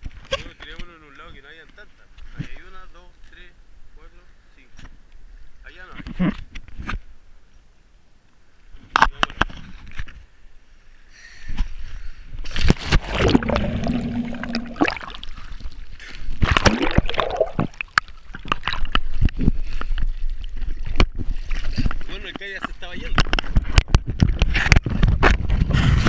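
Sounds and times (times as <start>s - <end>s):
sea water sloshing and splashing: 12.5s - 22.1s.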